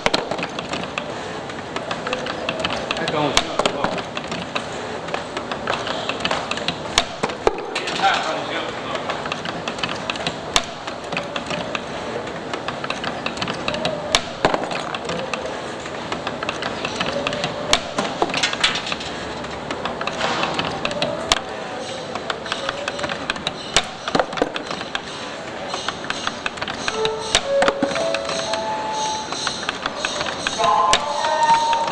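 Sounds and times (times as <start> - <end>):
spring-coiling machine running: 9.2 - 31.9.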